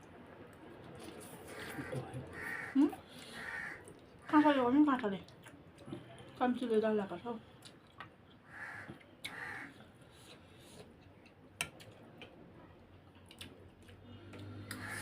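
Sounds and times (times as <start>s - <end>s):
quiet chewing: 0.5s - 2.1s, 7.5s - 15.0s.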